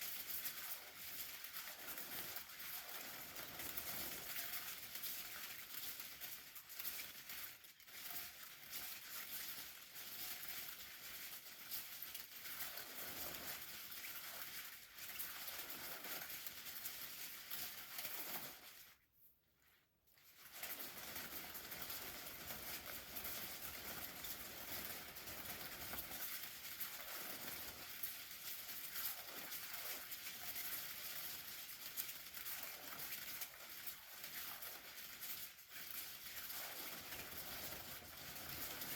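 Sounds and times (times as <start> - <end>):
crinkling patter on umbrella: 0.0 - 19.0, 20.1 - 38.9.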